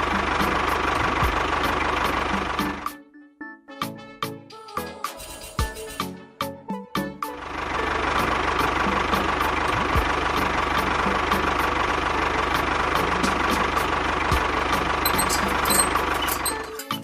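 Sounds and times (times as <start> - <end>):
engine idling: 0.0 - 3.0, 7.2 - 17.0.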